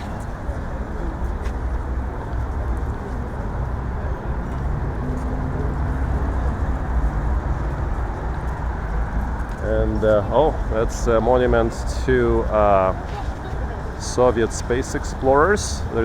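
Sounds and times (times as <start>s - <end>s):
city traffic rumble: 0.0s - 16.0s.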